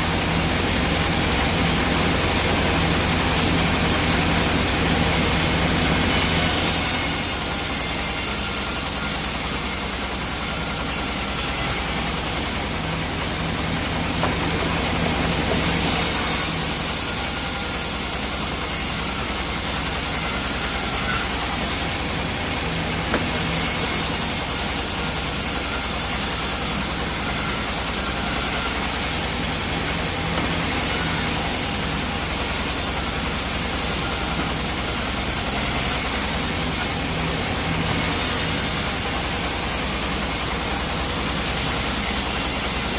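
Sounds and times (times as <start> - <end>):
sawmill machinery hum: 0.0 - 42.9.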